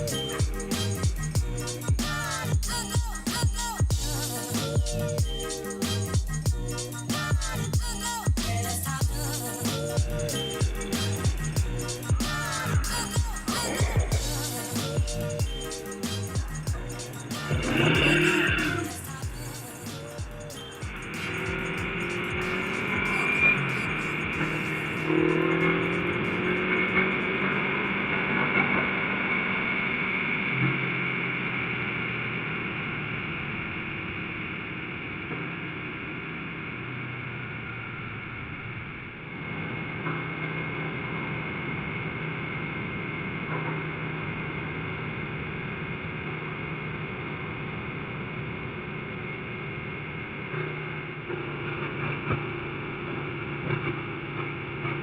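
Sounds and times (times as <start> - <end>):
motorcycle engine running: 10.0 - 29.4
road and wind noise: 21.2 - 55.0.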